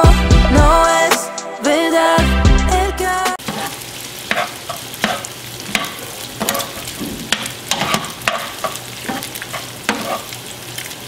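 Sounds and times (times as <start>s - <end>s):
spoon scraping and knocking pan: 3.4s - 10.4s
meat sizzling in a pan: 3.4s - 11.0s.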